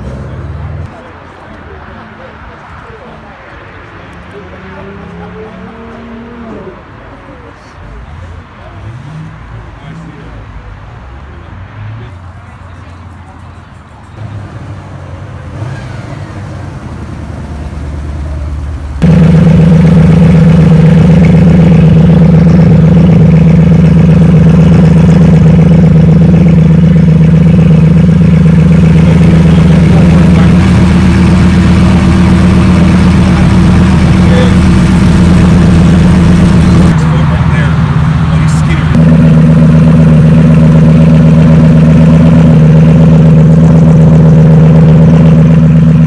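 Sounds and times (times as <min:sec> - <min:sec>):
car engine running: 0:00.0 - 0:00.9, 0:14.2 - 0:46.0.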